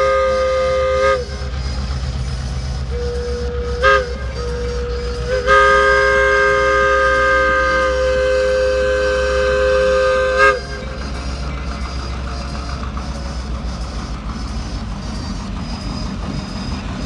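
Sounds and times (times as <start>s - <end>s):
locomotive air horn: 0.0s - 12.2s.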